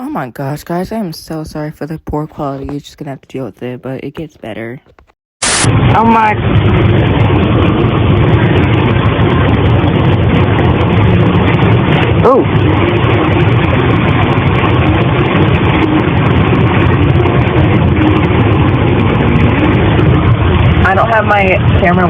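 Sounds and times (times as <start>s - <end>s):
heavy rain drumming on a car: 5.8s - 22.0s.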